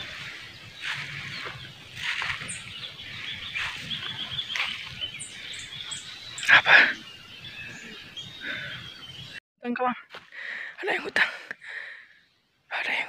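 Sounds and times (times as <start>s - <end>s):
high bird chirps: 0.0s - 9.4s.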